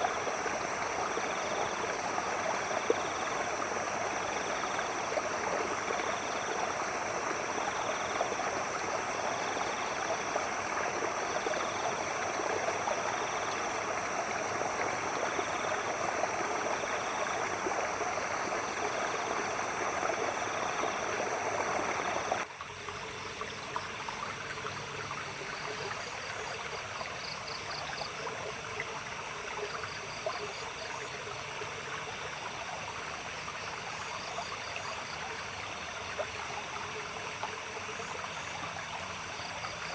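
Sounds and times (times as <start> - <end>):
stream running: 0.0 - 39.9.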